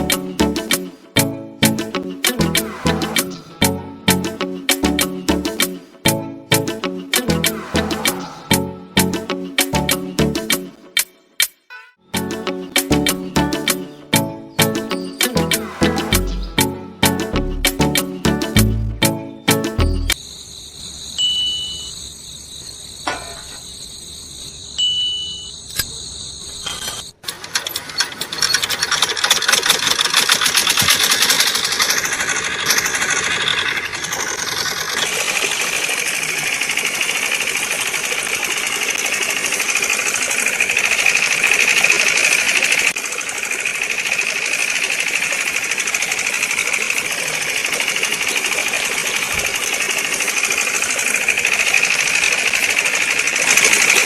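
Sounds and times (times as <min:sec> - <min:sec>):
chiming background music: 0:13.4 - 0:17.0
small engine rattling clatter: 0:27.2 - 0:54.0.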